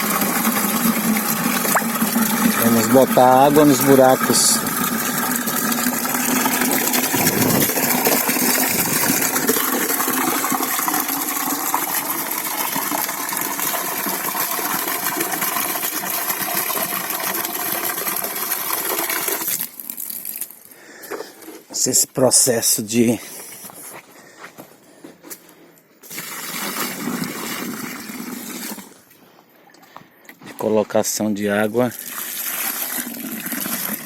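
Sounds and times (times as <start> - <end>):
water pouring into a hole: 0.0 - 21.6, 26.0 - 29.0, 31.8 - 34.0.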